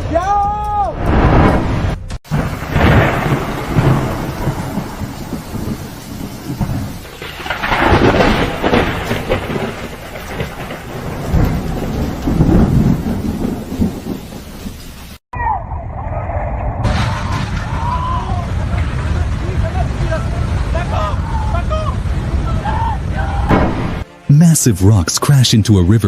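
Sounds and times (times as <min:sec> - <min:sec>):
deep rumbling: 0:00.9 - 0:24.1
continuous rushing noise: 0:17.7 - 0:24.1.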